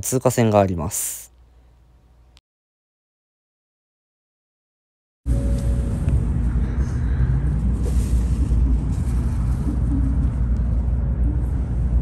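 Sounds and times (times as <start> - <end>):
deep train rumble: 5.3 - 12.0
faint shifting tones: 5.3 - 12.0.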